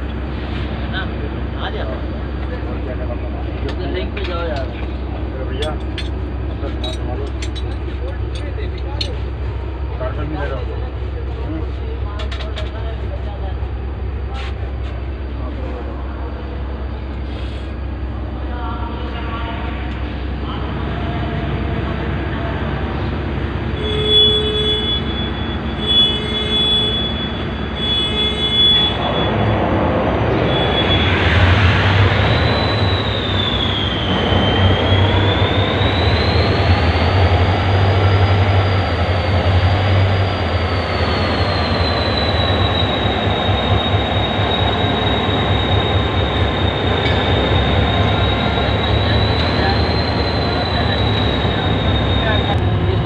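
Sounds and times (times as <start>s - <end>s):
diesel locomotive engine whine: 0.0s - 53.0s.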